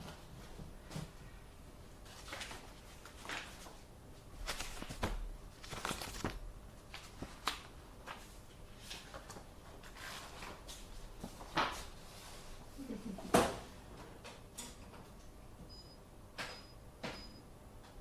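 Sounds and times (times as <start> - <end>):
paper rustling: 2.0 - 12.0.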